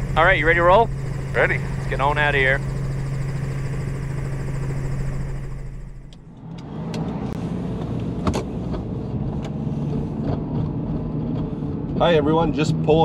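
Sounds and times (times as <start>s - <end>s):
helicopter engine and rotor drone: 0.0s - 6.7s
car running noise: 0.0s - 13.0s.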